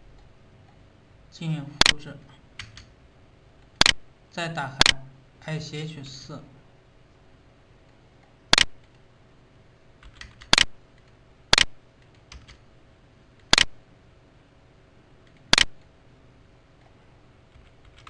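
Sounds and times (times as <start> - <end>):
computer mouse clicking: 2.6 - 2.9, 7.9 - 9.0, 10.0 - 12.6, 13.4 - 13.7, 15.2 - 15.9.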